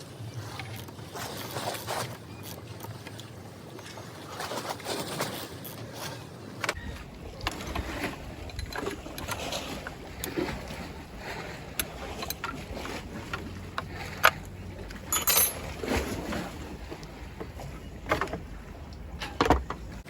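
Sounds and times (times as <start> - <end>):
tools and metal parts clunking: 6.6 - 20.0
low background rumble: 6.8 - 20.0.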